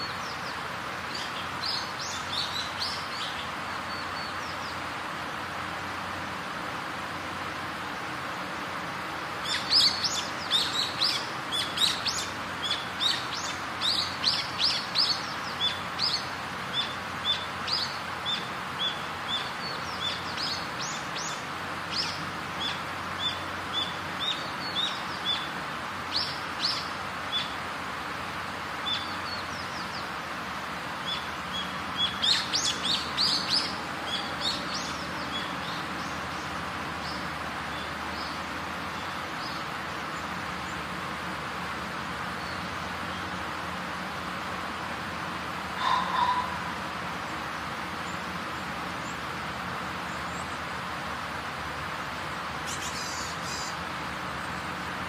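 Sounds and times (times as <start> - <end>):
small birds chirping: 0.0 - 6.3, 7.3 - 41.0, 52.1 - 55.0
outdoor ambient hiss: 0.0 - 55.0.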